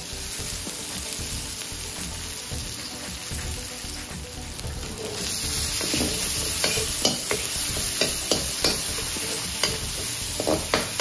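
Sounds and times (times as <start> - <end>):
garlic sizzling in oil: 0.0 - 11.0
metal ladle scraping wok: 4.8 - 11.0.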